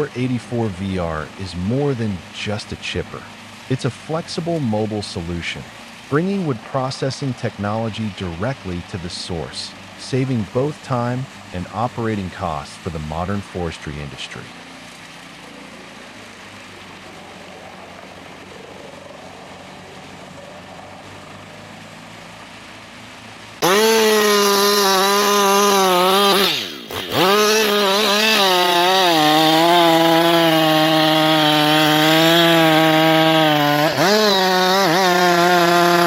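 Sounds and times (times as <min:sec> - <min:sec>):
quiet machine noise: 0:00.0 - 0:23.7
chainsaw running at high revs: 0:00.0 - 0:36.0.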